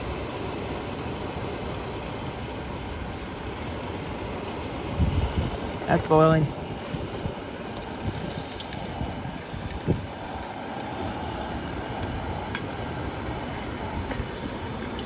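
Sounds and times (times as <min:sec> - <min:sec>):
gas stoves roaring: 0:00.0 - 0:15.0
wind rumble on microphone: 0:04.0 - 0:15.0.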